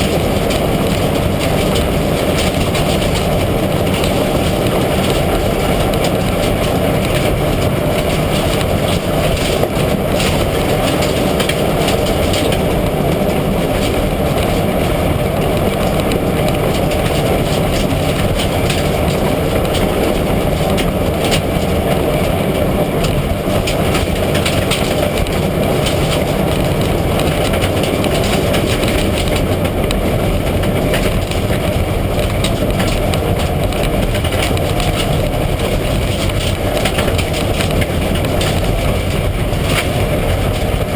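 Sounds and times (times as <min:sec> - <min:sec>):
knocks and rattles: 0:00.0 - 0:40.9
rally car engine: 0:00.0 - 0:40.9
tyre and road noise: 0:00.0 - 0:40.9.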